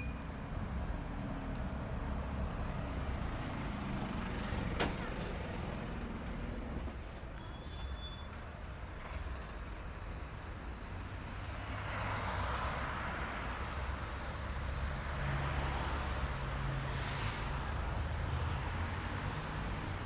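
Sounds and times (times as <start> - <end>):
cars passing: 0.0 - 7.4, 11.5 - 20.0
low rumble of engines: 0.0 - 20.0.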